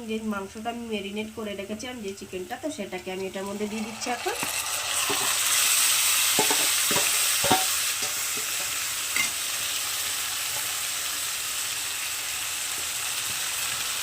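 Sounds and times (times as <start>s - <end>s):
chicken sizzling in oil: 2.3s - 14.0s
utensil knocking against pan: 6.4s - 9.3s.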